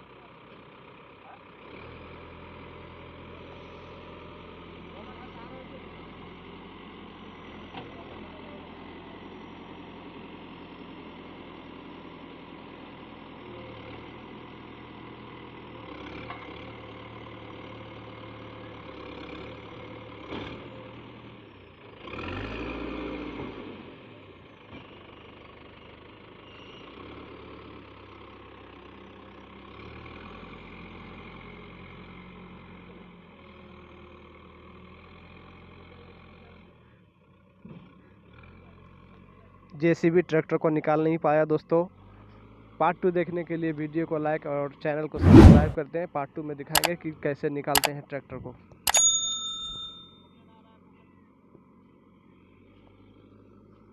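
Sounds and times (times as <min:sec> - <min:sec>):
heavy diesel engine running: 0:00.0 - 0:22.4.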